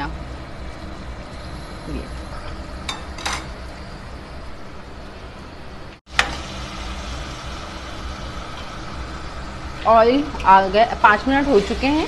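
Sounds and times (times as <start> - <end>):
low rumble of gas burner: 0.0 - 12.0
meat sizzling in oil: 6.1 - 12.0.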